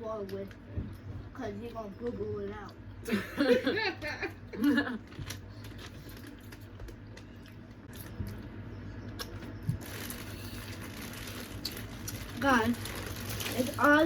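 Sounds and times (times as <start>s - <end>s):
wet squishing and chewing: 5.2s - 13.9s.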